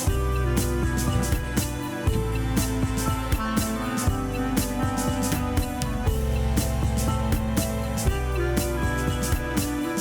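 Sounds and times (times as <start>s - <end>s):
regular drum hits: 0.0s - 10.0s.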